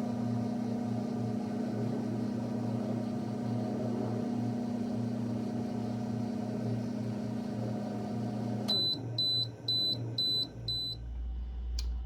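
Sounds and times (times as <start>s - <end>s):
microwave oven humming: 0.0s - 12.0s
microwave beeping: 4.6s - 11.1s.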